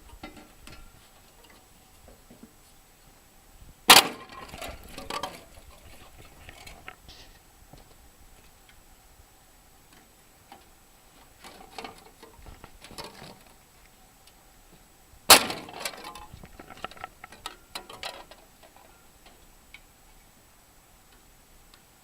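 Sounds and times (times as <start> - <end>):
loud sharp metal snap: 3.9 - 4.6, 15.3 - 16.2.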